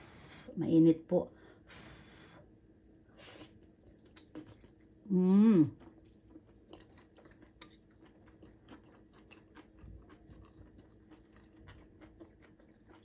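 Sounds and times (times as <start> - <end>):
chewing noodles: 3.4 - 5.1, 5.7 - 13.0.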